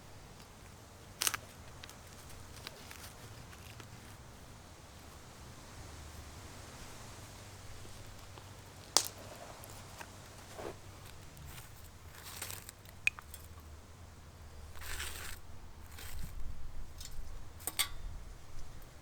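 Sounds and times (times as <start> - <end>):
hissing rustles: 0.4 - 12.9
wood fire crackling: 6.5 - 13.2
fire pops: 8.2 - 11.6.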